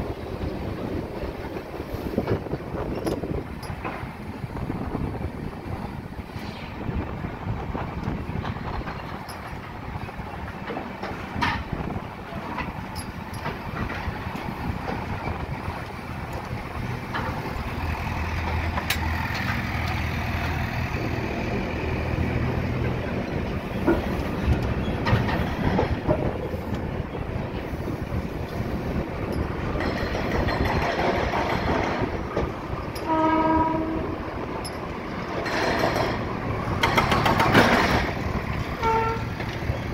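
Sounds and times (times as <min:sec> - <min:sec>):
train wheels rumbling on rails: 0:00.0 - 0:39.9
wheels clicking over rail joints: 0:00.0 - 0:39.9
train horn: 0:33.0 - 0:34.2, 0:38.8 - 0:39.4.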